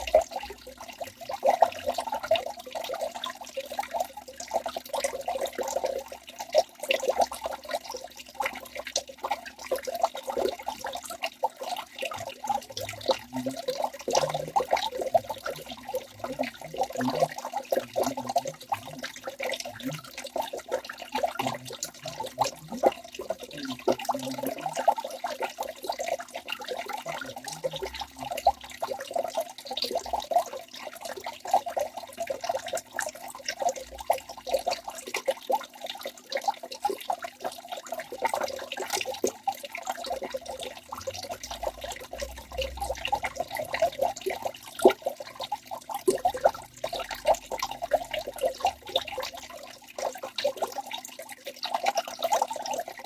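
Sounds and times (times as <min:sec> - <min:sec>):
waterfall pouring and splashing: 0:00.0 - 0:00.4, 0:21.4 - 0:25.0.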